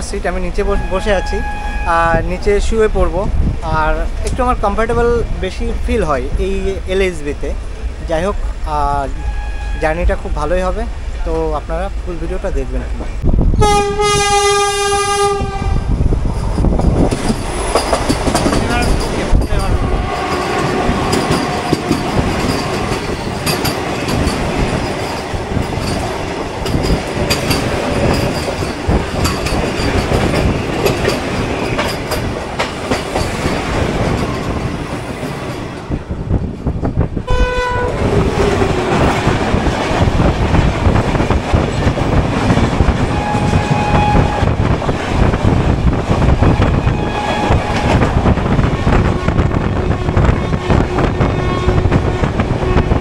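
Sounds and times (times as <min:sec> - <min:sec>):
train running rumble: 0:00.0 - 0:53.0
train horn sliding down in pitch: 0:00.8 - 0:02.1, 0:09.1 - 0:10.1, 0:13.6 - 0:15.9, 0:37.3 - 0:38.1, 0:43.1 - 0:44.5, 0:46.4 - 0:47.9.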